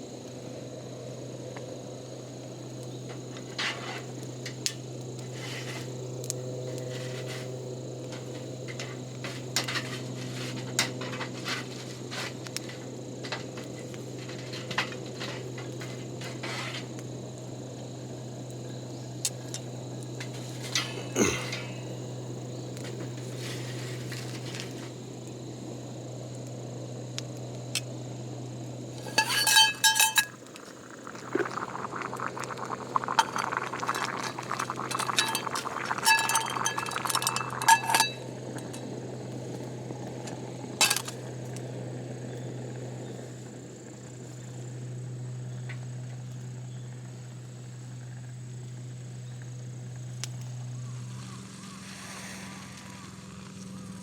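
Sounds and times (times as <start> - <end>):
steady low hum: 27.8 - 43.9
metal cookware clinking: 29.0 - 30.4, 33.2 - 38.8
liquid being poured: 29.0 - 38.8.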